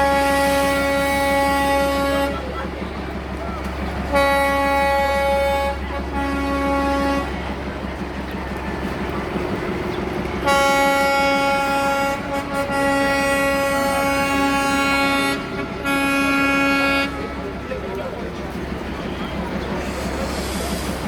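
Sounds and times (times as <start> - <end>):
train whistle tooting: 0.0 - 2.6, 4.1 - 7.4, 10.4 - 17.5.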